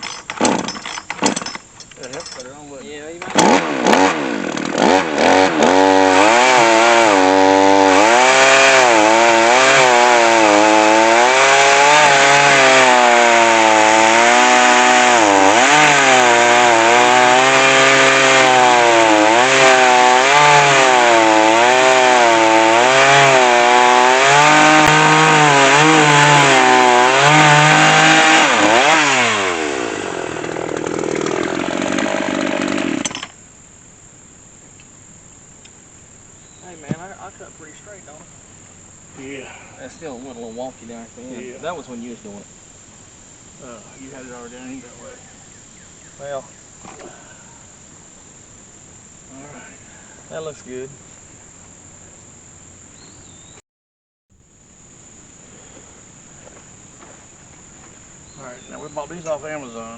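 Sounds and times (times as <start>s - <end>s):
chainsaw ripping through log: 0.0s - 2.1s, 3.2s - 33.3s.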